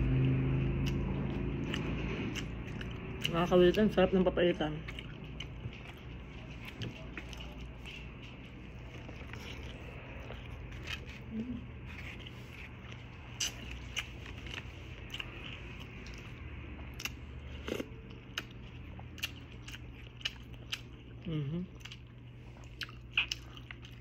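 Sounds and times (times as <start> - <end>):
steady low hum: 0.0 - 24.0
chewing clicks and smacks: 0.2 - 3.8, 12.9 - 21.2, 21.8 - 24.0.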